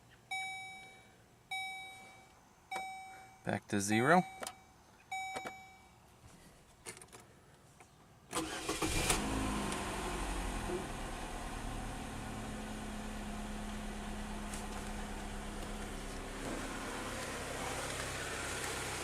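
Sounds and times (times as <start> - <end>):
car engine starting and idling: 8.3 - 19.0.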